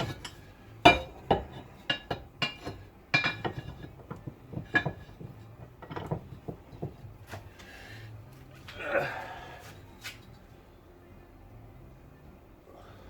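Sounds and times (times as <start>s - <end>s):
metallic clinks and knocks: 0.0s - 7.1s.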